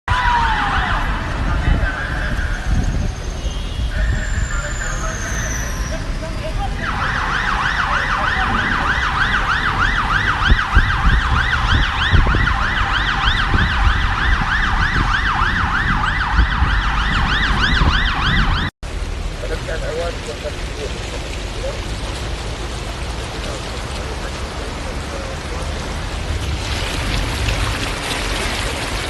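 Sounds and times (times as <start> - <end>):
emergency siren yelping: 0.1 - 18.7
wind and rain rumble: 0.1 - 29.0.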